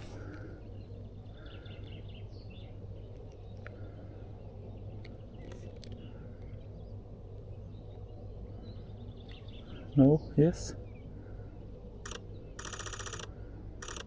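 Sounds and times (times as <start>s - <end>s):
birds calling: 0.0s - 14.0s
steady low rumble: 0.0s - 14.0s
sharp clicks: 12.0s - 14.0s.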